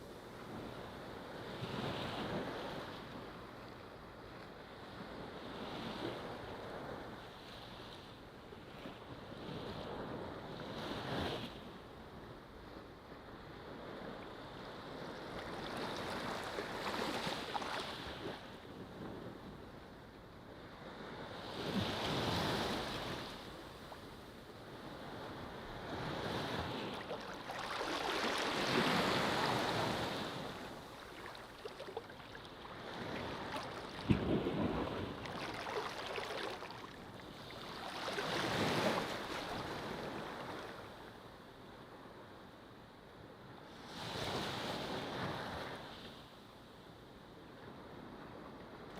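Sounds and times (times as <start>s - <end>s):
ocean waves breaking: 24.8s - 41.0s.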